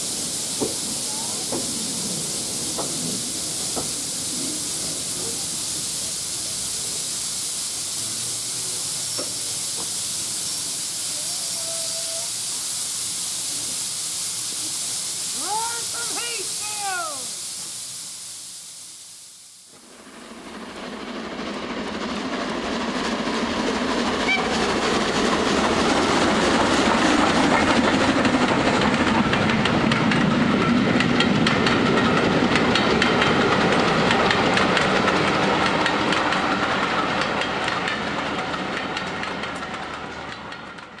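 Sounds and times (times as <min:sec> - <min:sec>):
train wheels clattering over joints: 0:21.5 - 0:41.0.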